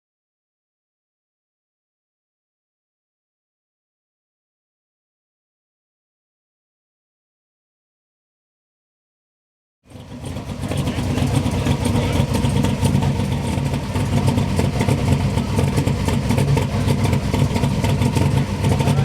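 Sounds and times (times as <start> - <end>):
engine at loud idle: 9.9 - 19.0.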